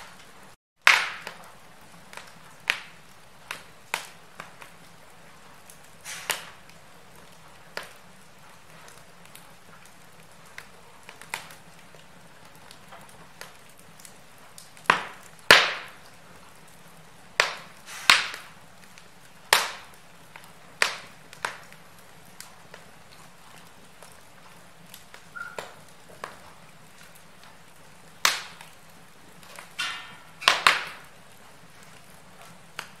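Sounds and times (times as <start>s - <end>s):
wood fire crackling: 0.0s - 33.0s
faint whistle: 25.3s - 25.8s.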